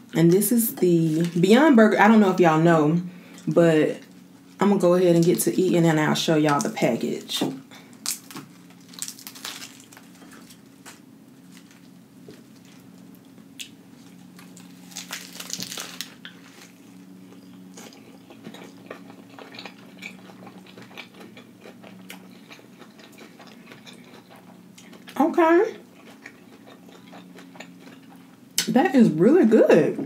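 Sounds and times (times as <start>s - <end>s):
crunching bites into lettuce: 7.8s - 12.9s, 13.6s - 17.0s
chewing and wet mouth sounds: 12.6s - 25.2s, 25.8s - 28.7s.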